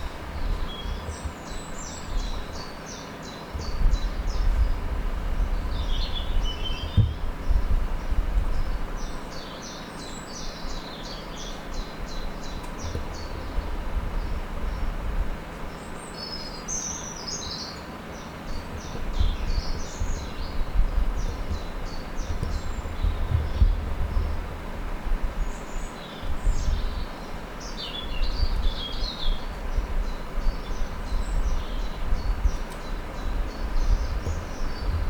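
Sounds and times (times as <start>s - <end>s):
wind on microphone: 0.0s - 2.8s, 3.5s - 9.2s, 10.4s - 15.5s, 18.3s - 35.0s
small birds singing: 0.0s - 35.0s.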